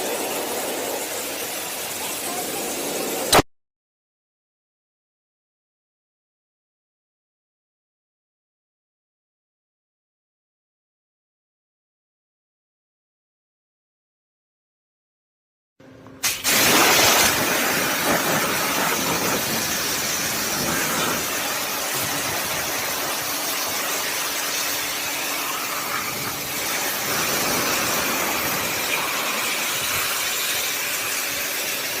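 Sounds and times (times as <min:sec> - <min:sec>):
pressure washer spraying hiss: 0:00.0 - 0:03.4, 0:16.2 - 0:32.0.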